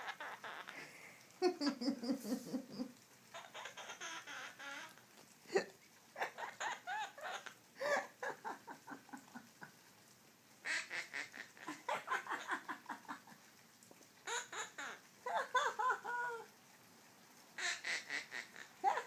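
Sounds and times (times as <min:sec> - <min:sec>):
parrot imitating laughter: 0:00.0 - 0:00.9, 0:01.5 - 0:05.0, 0:05.6 - 0:09.6, 0:10.6 - 0:13.4, 0:14.2 - 0:16.5, 0:17.6 - 0:19.0.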